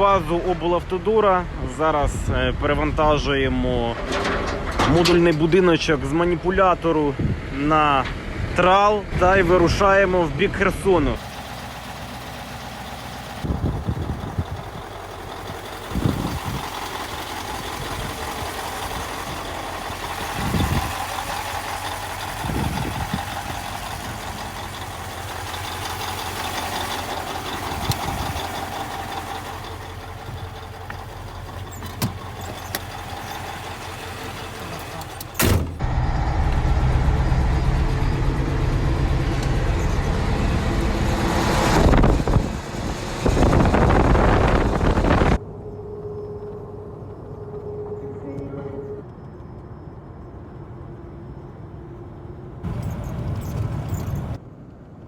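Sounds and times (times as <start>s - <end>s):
knocks and clunks: 3.9s - 5.4s, 13.4s - 35.9s
heavy truck engine running: 11.1s - 54.5s.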